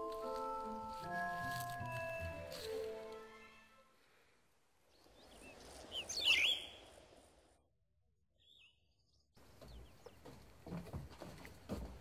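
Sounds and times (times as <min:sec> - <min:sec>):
outdoor background noise: 0:00.2 - 0:07.7, 0:09.3 - 0:12.0
small bird chirping: 0:04.9 - 0:07.0, 0:08.4 - 0:10.2.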